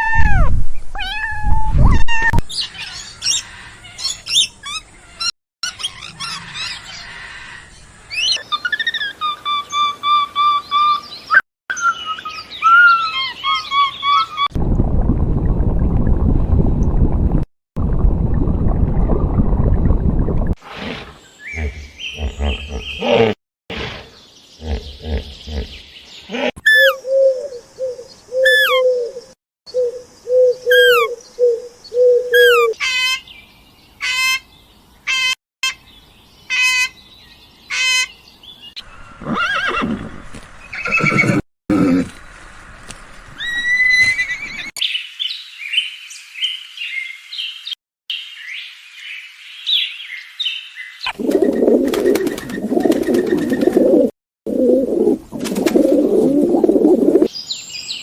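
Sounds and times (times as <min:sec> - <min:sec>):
farm animal calls: 0:21.5 - 0:29.2, 0:30.4 - 0:33.0.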